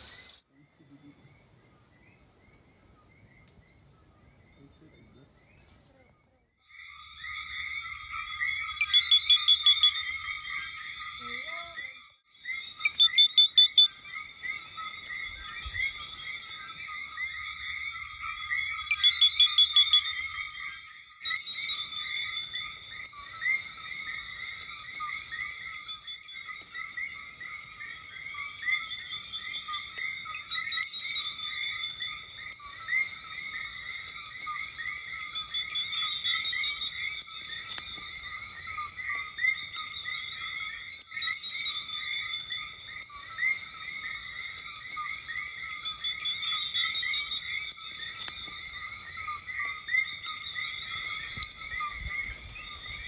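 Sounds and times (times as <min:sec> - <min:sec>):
rapid high trilling: 0:00.0 - 0:00.4
frog chorus: 0:00.0 - 0:53.0
sharp clicks: 0:51.4 - 0:51.6.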